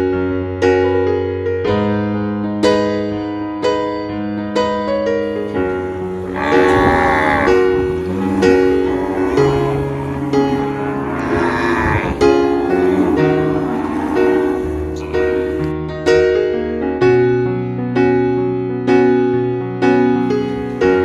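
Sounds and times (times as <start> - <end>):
piano music: 0.0 - 21.0
cow mooing: 5.9 - 15.7.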